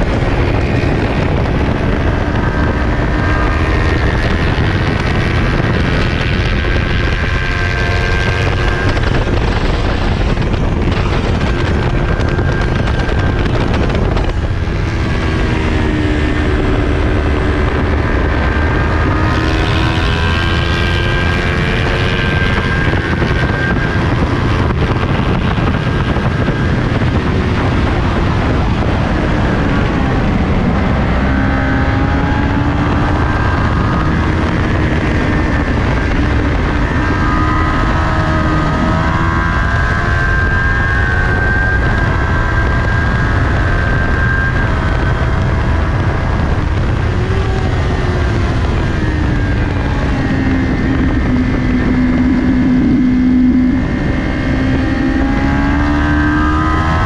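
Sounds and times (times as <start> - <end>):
motorcycle engine at speed: 0.0 - 57.0
wind rush on microphone: 0.0 - 57.0.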